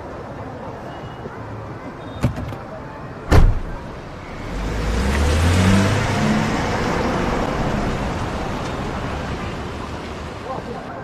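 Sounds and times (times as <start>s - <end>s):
car door thumping shut: 2.2s - 2.6s, 3.3s - 3.8s
car pulling away: 4.2s - 10.5s.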